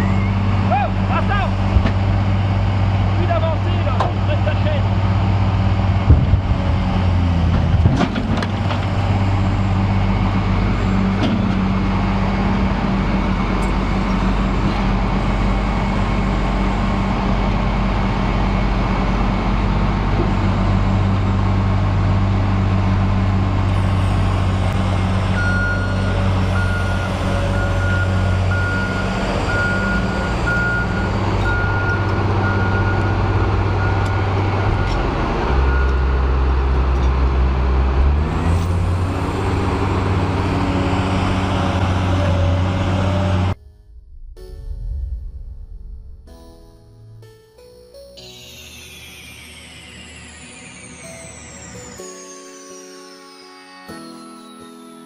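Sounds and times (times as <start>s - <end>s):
heavy machine engine running: 0.0s - 47.3s, 48.6s - 52.0s
reversing alarm beeping: 23.7s - 36.4s, 48.5s - 52.5s.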